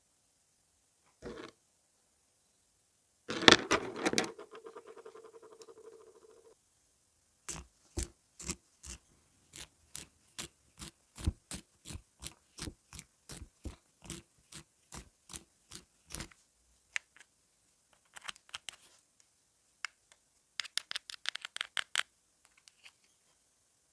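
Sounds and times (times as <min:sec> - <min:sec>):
pencil sharpening scrapes: 0:08.4 - 0:16.3.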